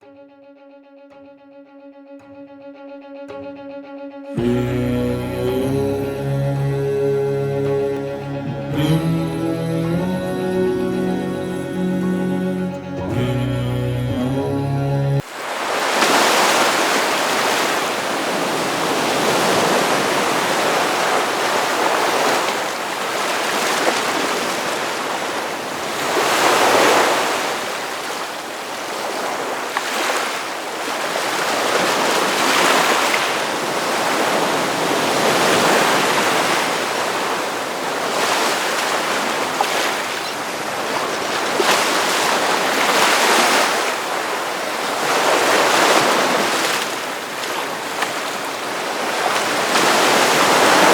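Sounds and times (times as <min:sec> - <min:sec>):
waves breaking on a beach: 0:15.2 - 0:50.9.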